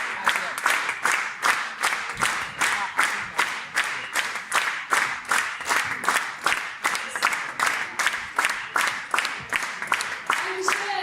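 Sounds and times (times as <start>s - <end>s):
audience clapping in unison: 0.0s - 11.0s
crowd noise: 0.0s - 11.0s.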